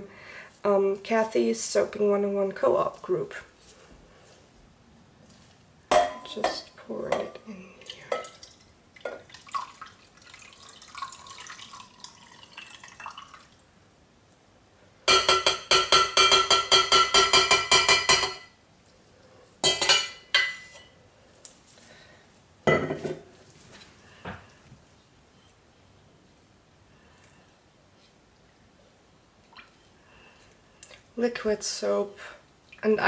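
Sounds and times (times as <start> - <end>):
faint liquid trickle: 7.4 - 13.8, 29.4 - 33.0.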